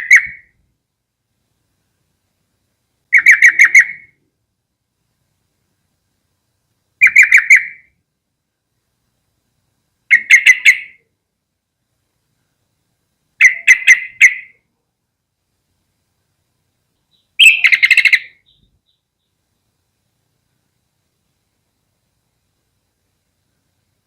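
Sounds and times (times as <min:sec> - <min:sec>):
bird chattering: 0:00.0 - 0:00.5, 0:03.1 - 0:04.2, 0:07.0 - 0:07.9, 0:10.1 - 0:11.0, 0:13.4 - 0:14.6, 0:17.0 - 0:19.4.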